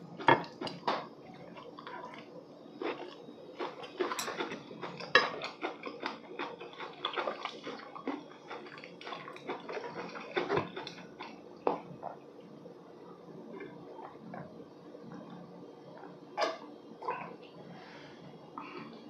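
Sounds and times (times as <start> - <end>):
wet chewing: 0.5 - 12.2
chopsticks and spoon on dishes: 2.8 - 11.4.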